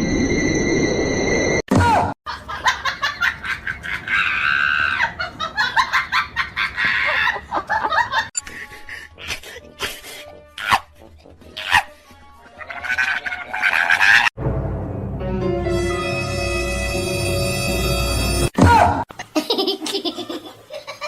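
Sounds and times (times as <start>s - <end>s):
people laughing: 2.3s - 9.6s
background music: 8.4s - 19.0s.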